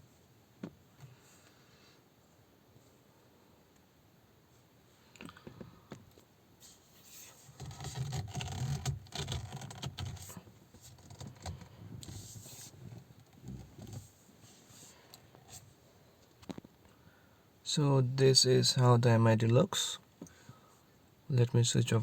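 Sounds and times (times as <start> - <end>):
rustling and scraping: 5.4 - 16.9.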